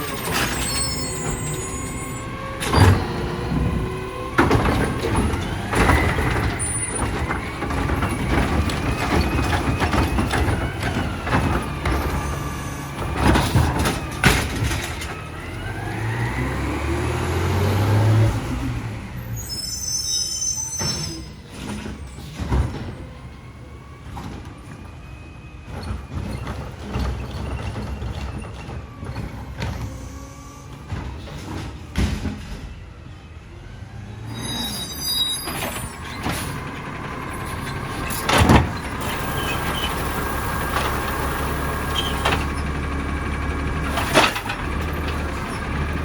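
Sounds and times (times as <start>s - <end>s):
truck engine revving: 0.0s - 19.4s, 35.6s - 46.0s
hydraulic whine: 0.0s - 23.0s, 34.1s - 46.0s.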